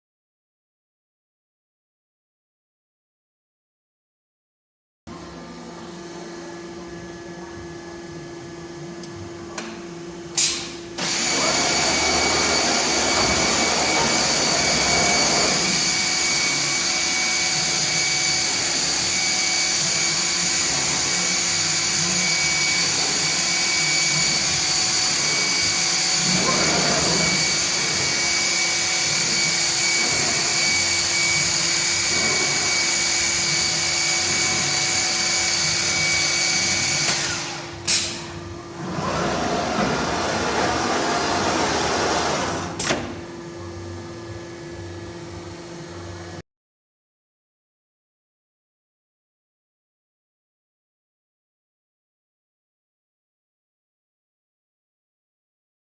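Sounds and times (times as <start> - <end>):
machine low hum: 5.1 - 36.2, 37.6 - 46.4
machine high-pitched whine: 5.1 - 46.4.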